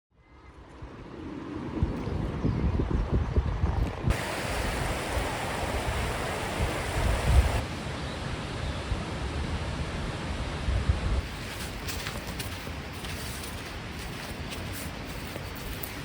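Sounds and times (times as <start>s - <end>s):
wind buffeting microphone: 1.2s - 7.6s
steady hiss: 4.1s - 8.0s.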